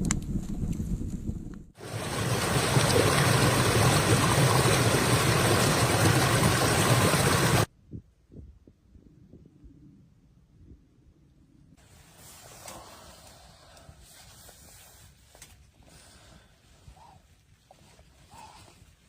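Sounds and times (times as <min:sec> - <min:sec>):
blizzard wind blowing hard: 0:00.0 - 0:09.8.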